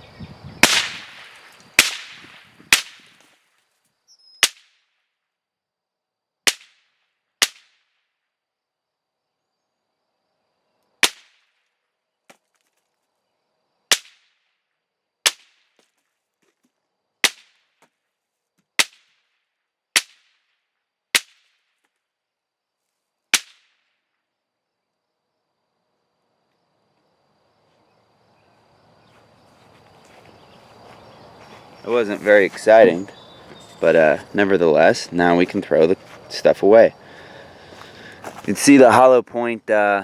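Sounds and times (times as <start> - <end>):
rifle shots cracking: 0.6 - 3.1.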